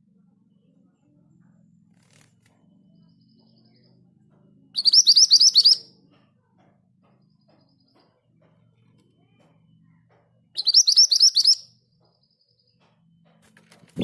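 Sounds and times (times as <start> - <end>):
faint low hum: 0.0 - 10.8
bird whistling rapid notes: 4.8 - 5.8, 10.6 - 11.6.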